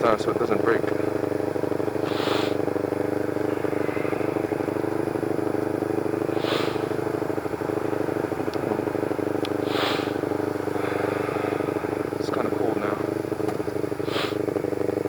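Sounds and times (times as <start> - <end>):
motorcycle engine running: 0.0 - 15.0
short hissing: 2.0 - 5.1, 6.2 - 7.1, 9.5 - 12.3, 14.0 - 14.5.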